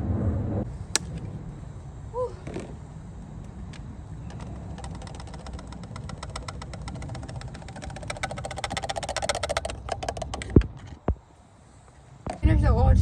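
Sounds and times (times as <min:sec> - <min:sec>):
ratchet wrench clicking: 0:04.2 - 0:10.9.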